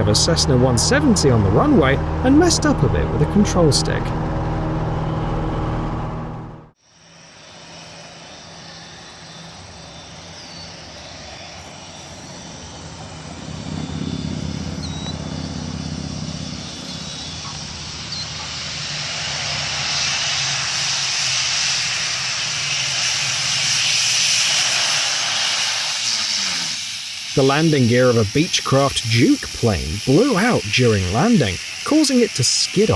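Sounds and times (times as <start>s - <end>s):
propeller plane engine drone: 0.0s - 32.9s
rushing air noise: 11.5s - 28.6s.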